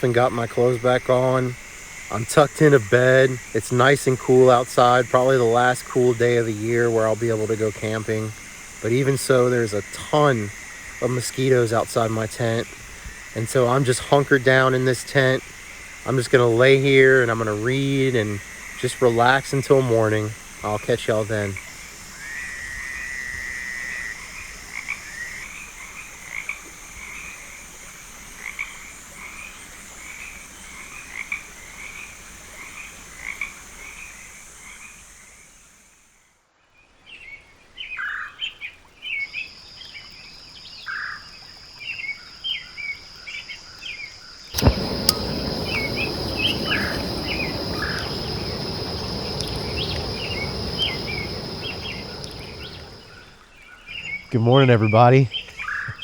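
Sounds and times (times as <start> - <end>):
frogs calling: 0.0 - 35.5, 44.6 - 53.4
high insect drone: 0.0 - 36.1, 44.6 - 53.4
sharp click: 44.6 - 53.0
steady rushing noise: 44.6 - 53.3.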